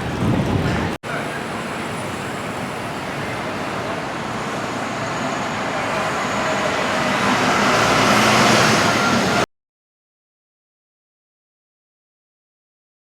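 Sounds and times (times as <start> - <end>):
rumble of passing road vehicles: 0.0 - 9.4.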